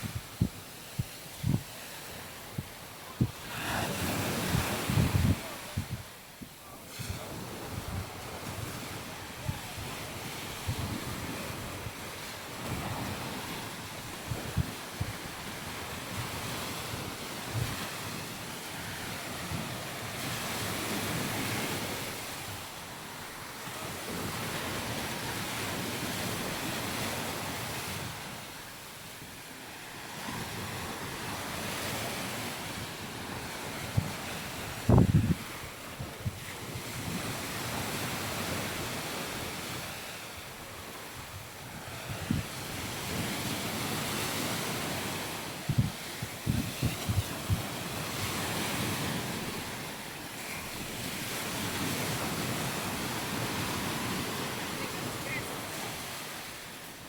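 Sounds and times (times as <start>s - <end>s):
wind buffeting microphone: 0.0s - 18.3s, 30.2s - 39.9s, 40.7s - 50.0s
surf washing onto beach: 0.0s - 57.0s.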